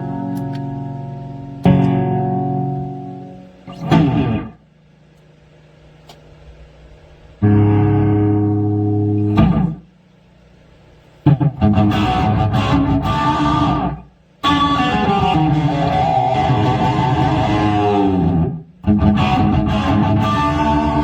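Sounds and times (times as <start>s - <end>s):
electric guitar strummed chords: 0.0s - 4.6s, 7.4s - 9.8s, 11.3s - 21.0s
electric guitar held note: 11.3s - 21.0s.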